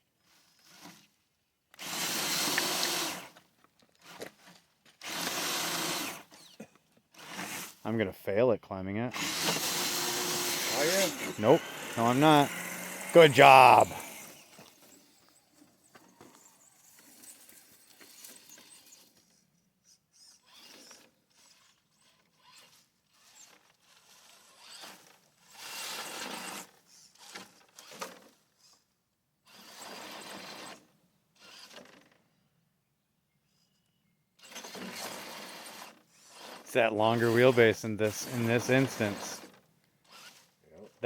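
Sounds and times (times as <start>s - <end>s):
small electric motor bursts: 9.2s - 13.2s, 20.1s - 28.8s, 34.4s - 40.6s.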